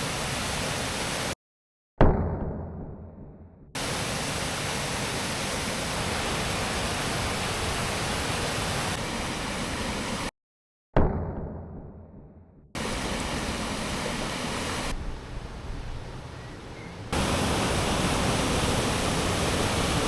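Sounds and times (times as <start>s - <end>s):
waterfall roaring: 0.0s - 1.3s, 3.8s - 10.3s, 12.8s - 20.0s.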